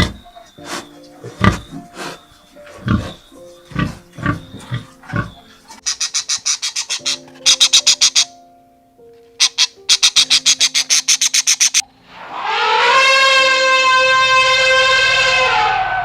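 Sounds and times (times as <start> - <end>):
pig grunting: 0.0 - 5.9
high sharp calls: 0.0 - 8.4, 9.4 - 16.0
background music: 0.0 - 12.1.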